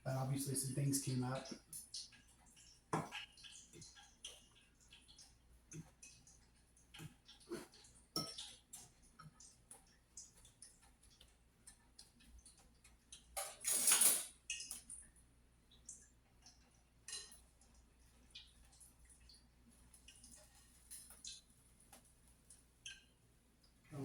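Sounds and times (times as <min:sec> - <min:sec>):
utensils tapping pans and dishes: 0:03.0 - 0:04.4, 0:07.0 - 0:09.8, 0:13.2 - 0:14.8.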